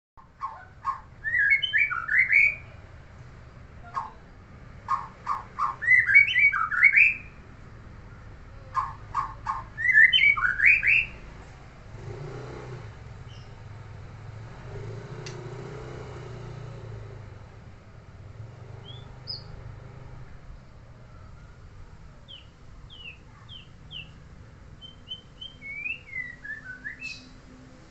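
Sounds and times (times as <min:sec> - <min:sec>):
songbird singing: 0:00.2 - 0:11.4, 0:13.0 - 0:18.0, 0:18.6 - 0:27.9
faint bird chirps: 0:00.4 - 0:02.9, 0:03.5 - 0:07.4, 0:13.2 - 0:13.7, 0:18.7 - 0:19.7, 0:21.0 - 0:27.4.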